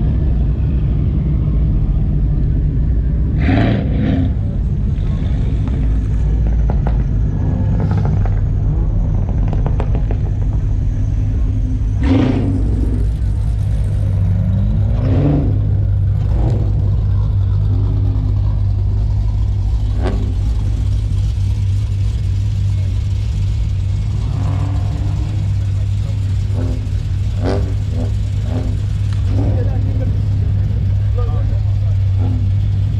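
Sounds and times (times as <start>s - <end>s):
car engine running: 0.0s - 32.9s.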